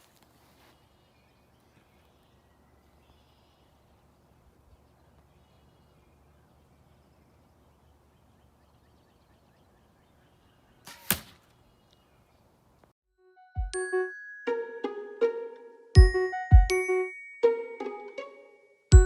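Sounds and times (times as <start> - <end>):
faint bird chirps: 0.6 - 11.0.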